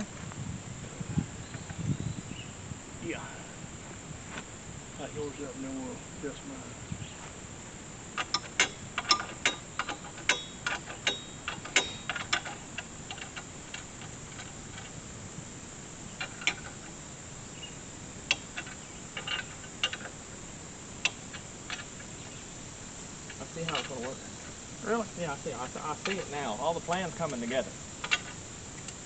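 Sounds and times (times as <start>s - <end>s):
insects droning: 0.0s - 29.0s
metal clicks of hand tools: 8.2s - 15.0s.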